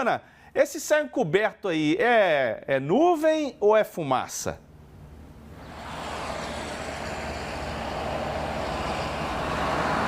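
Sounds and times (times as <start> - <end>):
low outdoor rumble: 4.7 - 10.0.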